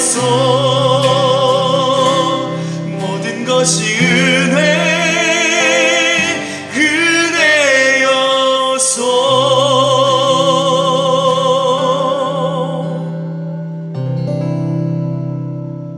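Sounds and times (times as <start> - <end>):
person singing with vibrato: 0.0 - 13.8
held instrumental accompaniment: 0.0 - 15.9.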